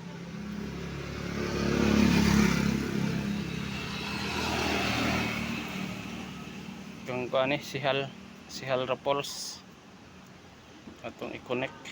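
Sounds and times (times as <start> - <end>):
motorcycle passing by: 0.0 - 8.5.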